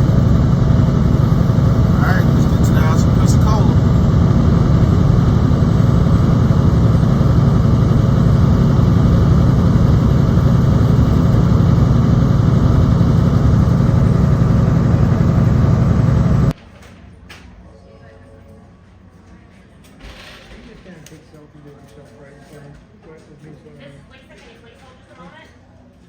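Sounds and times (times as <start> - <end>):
truck diesel engine running: 0.0 - 16.5.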